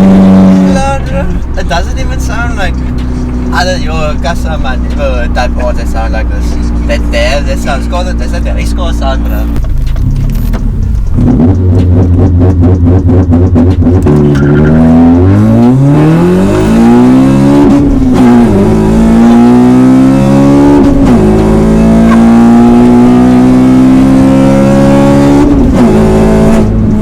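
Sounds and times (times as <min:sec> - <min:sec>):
car engine revving through gears: 0:00.0 - 0:27.0.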